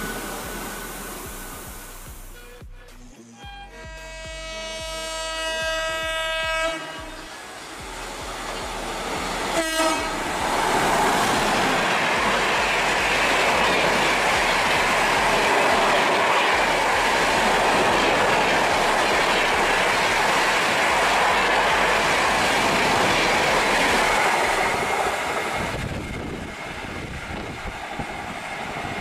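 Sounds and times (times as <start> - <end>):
fast train running on rails: 0.0 - 2.5, 3.5 - 29.0
train horn blast: 3.2 - 11.7.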